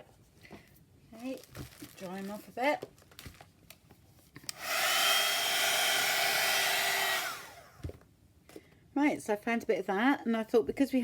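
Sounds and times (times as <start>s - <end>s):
hot-air dryer blowing with whine: 4.5s - 8.0s.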